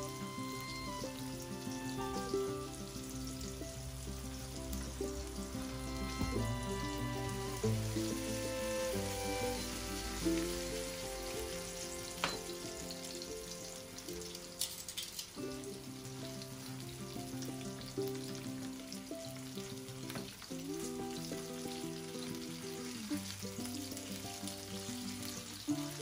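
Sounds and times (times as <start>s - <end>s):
background music: 0.0s - 14.6s
fish sizzling in hot oil: 0.0s - 26.0s
metal tongs clicking on pan: 14.2s - 15.4s.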